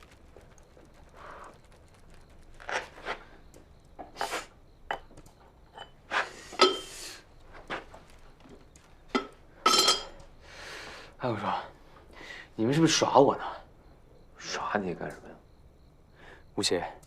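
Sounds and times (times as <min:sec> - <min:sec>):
dishes and utensils clattering: 0:05.7 - 0:07.0, 0:09.1 - 0:10.2
dishes scraping: 0:05.7 - 0:07.0.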